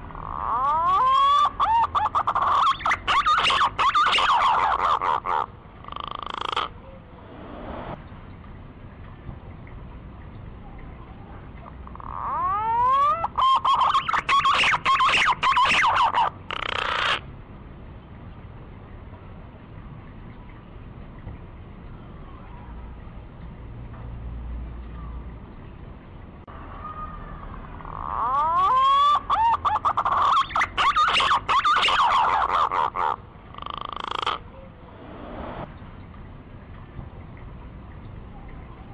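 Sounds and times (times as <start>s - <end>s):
buzzy rattling bird phrase: 0.2s - 7.2s, 13.2s - 17.2s, 27.8s - 35.4s
pigeon whistling song: 0.4s - 5.0s, 12.2s - 17.2s, 28.2s - 32.7s.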